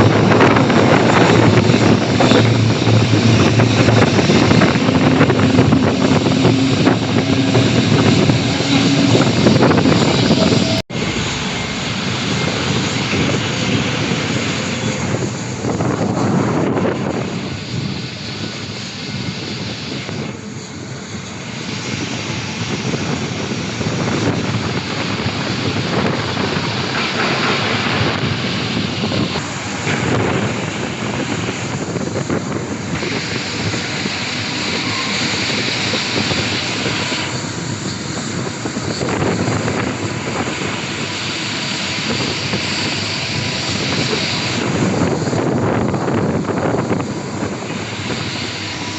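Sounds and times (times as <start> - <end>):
airplane engine rushing: 0.0 - 48.9.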